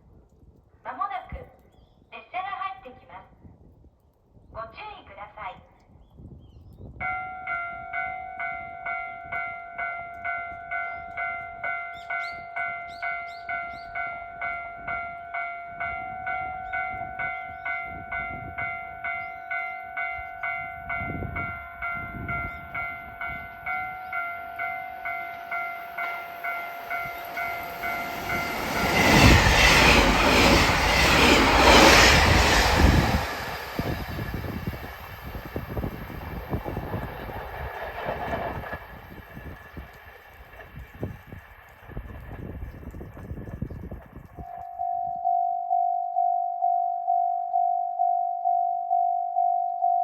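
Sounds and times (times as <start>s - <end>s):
level-crossing alarm dinging: 7.0s - 32.6s, 44.4s - 50.0s
electric train passing: 7.0s - 44.9s.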